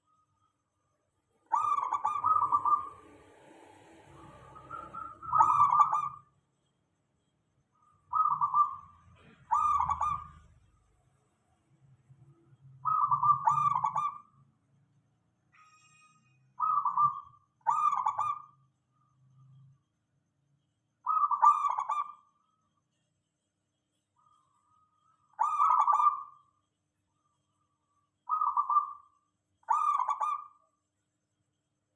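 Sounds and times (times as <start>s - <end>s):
dove cooing: 1.4s - 3.4s, 4.1s - 6.2s, 8.1s - 10.5s, 12.8s - 14.2s, 16.6s - 18.4s, 21.0s - 22.1s, 25.4s - 26.4s, 28.3s - 29.1s.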